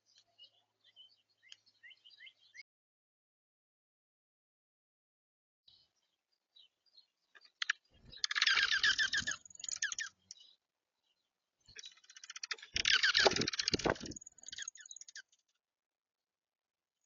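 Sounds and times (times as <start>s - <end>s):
animal clicking and scratching: 11.8s - 14.9s.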